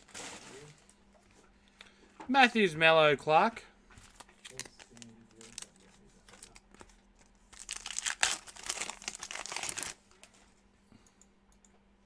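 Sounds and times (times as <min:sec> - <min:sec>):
wrapper crinkling and tearing: 0:04.0 - 0:10.2.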